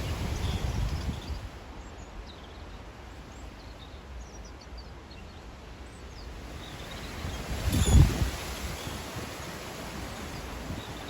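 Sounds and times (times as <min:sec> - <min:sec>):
wind buffeting microphone: 0:00.0 - 0:01.8, 0:06.3 - 0:11.0
bird chirping and twittering: 0:06.2 - 0:09.1.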